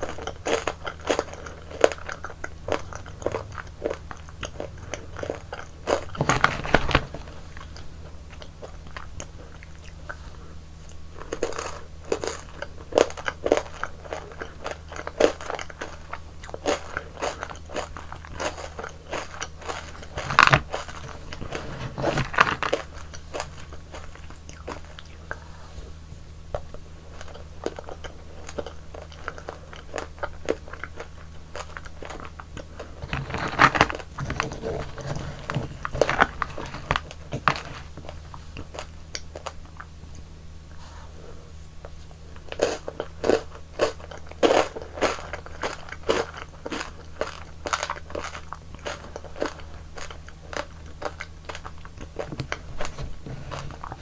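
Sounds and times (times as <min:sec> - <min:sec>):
crisp bites and crunches: 0:00.0 - 0:09.1, 0:11.2 - 0:25.1, 0:27.2 - 0:39.6
chewing: 0:00.0 - 0:54.0
steady low hum: 0:00.0 - 0:54.0.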